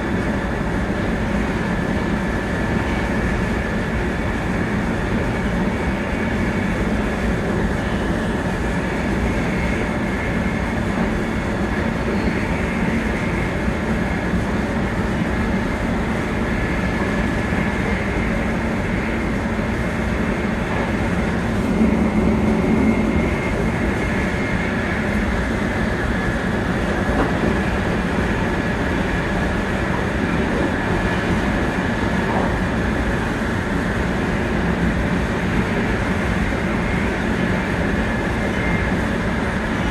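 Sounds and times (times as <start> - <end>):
train interior rumble: 0.0 - 39.9
faint high whine: 15.1 - 26.5.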